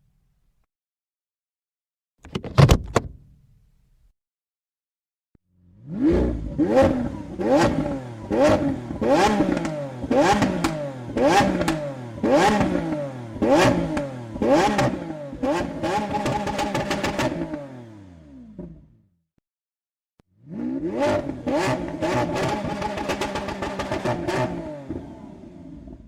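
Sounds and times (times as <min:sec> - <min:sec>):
car engine revving: 0:05.6 - 0:18.8, 0:20.4 - 0:25.9.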